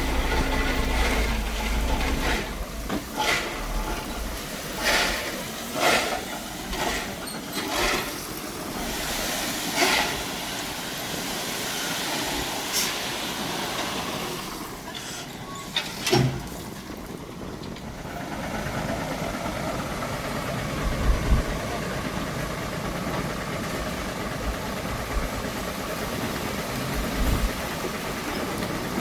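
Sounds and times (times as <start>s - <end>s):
heavy machinery working on gravel: 0.0s - 29.0s.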